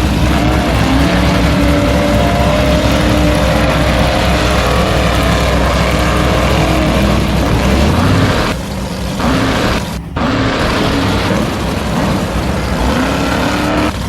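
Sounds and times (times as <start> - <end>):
electric motor whining: 0.0 - 14.0
heavy rumbling noise: 0.0 - 14.0.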